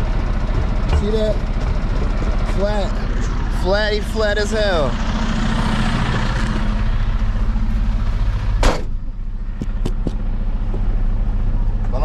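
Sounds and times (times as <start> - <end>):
diesel engine idling: 0.0 - 12.0
loud thump: 8.6 - 9.0.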